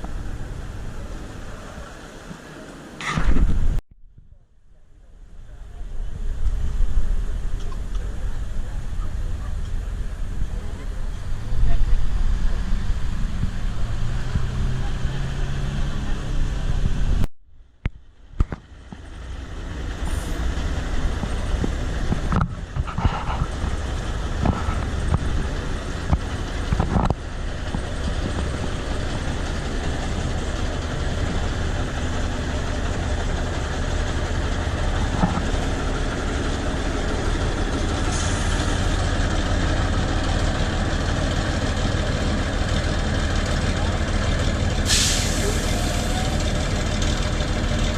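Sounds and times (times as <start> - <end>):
truck engine running: 4.7 - 47.9.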